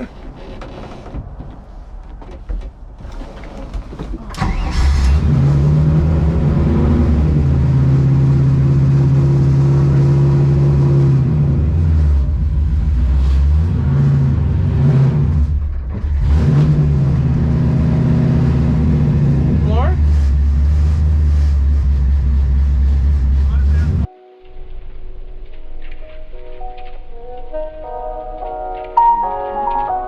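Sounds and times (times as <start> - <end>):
car engine starting and idling: 2.7 - 24.1.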